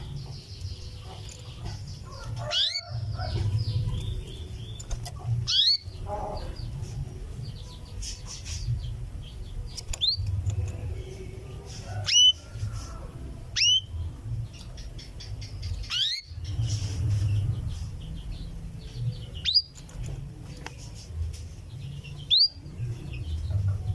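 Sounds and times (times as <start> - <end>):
canary whistled contact calls: 13.6 - 13.9.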